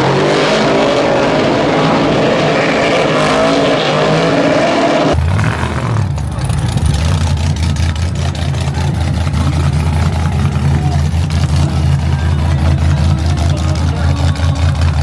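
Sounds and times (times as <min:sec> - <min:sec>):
truck engine idling: 0:05.1 - 0:15.0.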